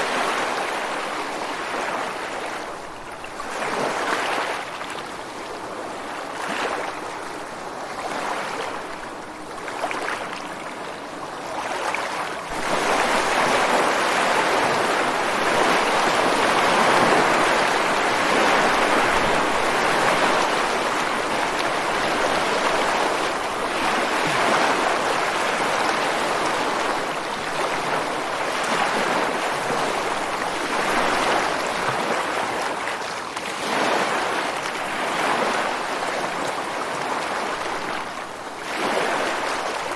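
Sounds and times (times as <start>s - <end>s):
ocean waves crashing: 12.5s - 32.9s.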